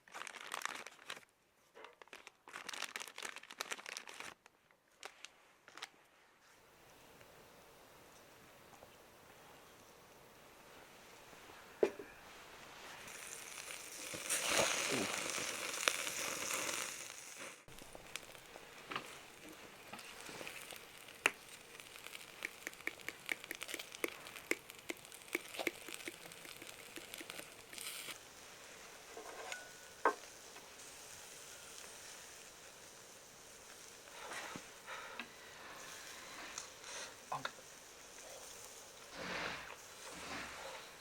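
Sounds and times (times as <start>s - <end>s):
meat sizzling on a grill: 12.7s - 41.0s
fat spitting and crackling: 13.1s - 28.2s.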